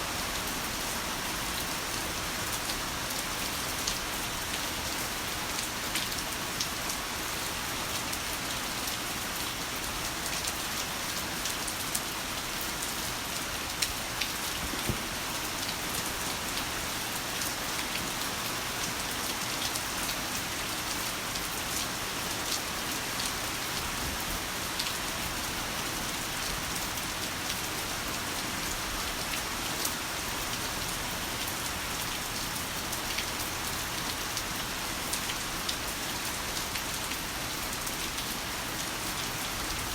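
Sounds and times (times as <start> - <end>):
heavy rain falling: 0.0 - 39.9
raindrop hits: 14.6 - 15.2.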